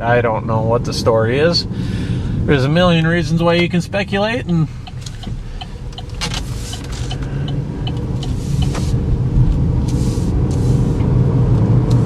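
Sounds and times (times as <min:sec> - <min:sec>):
car cabin rumble: 0:02.4 - 0:11.6
turn signal ticking: 0:02.9 - 0:11.2.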